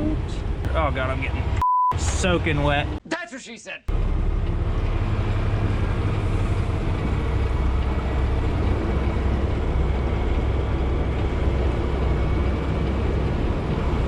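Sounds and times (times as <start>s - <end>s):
diesel truck engine idling: 3.9s - 14.0s.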